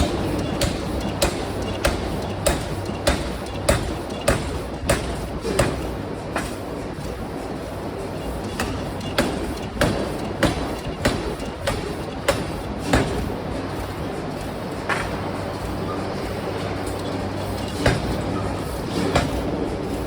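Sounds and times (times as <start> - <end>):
hammer striking metal: 0.0 - 6.6, 8.5 - 13.3, 17.6 - 19.6.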